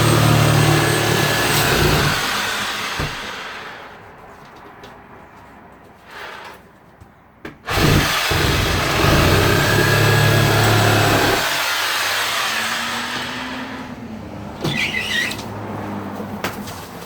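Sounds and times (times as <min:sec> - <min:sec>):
power tool cutting wood: 0:00.0 - 0:03.8, 0:07.7 - 0:14.0.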